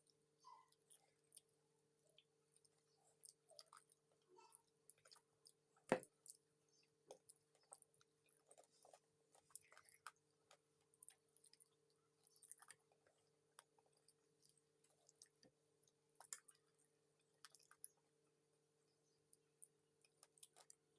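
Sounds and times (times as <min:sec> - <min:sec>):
person chewing: 0:00.6 - 0:18.0, 0:19.4 - 0:20.8.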